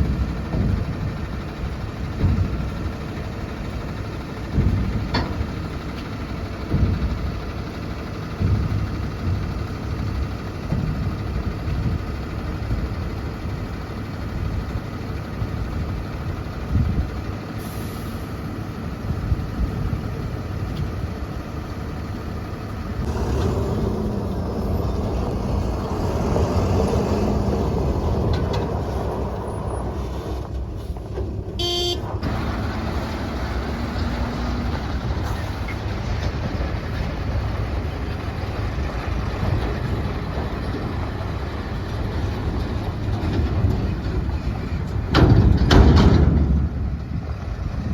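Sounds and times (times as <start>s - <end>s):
diesel truck engine running: 0.0s - 47.9s.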